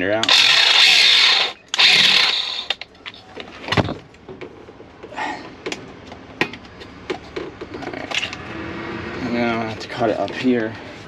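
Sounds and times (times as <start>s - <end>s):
power grinder: 0.2s - 2.8s
clicks and knocks of parts handled: 5.6s - 8.4s.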